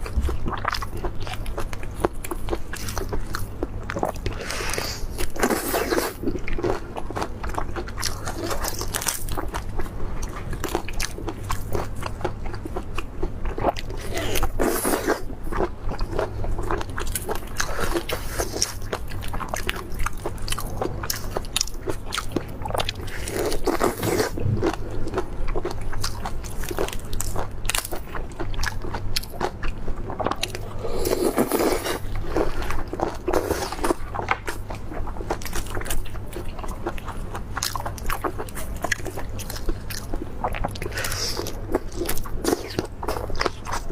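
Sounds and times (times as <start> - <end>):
crunchy chewing: 0.0 - 43.9
low hum: 24.0 - 25.7.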